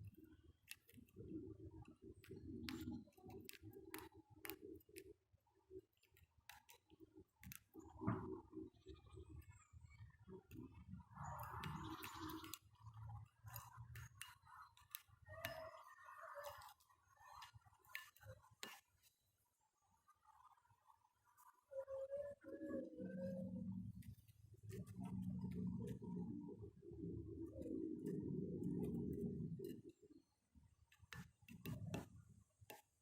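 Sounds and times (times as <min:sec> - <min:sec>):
birds pecking at peanuts: 0:11.3 - 0:18.8.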